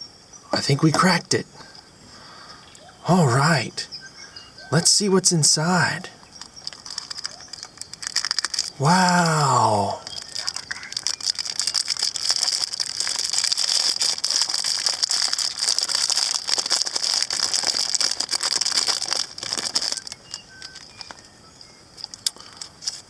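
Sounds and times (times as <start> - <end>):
shell and wrapping crinkling: 6.4 - 21.3, 22.0 - 23.0.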